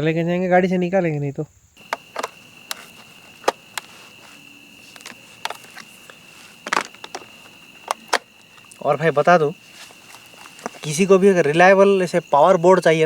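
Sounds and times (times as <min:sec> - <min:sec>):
cricket trilling: 0:00.0 - 0:13.0
sharp crackles: 0:01.8 - 0:11.2.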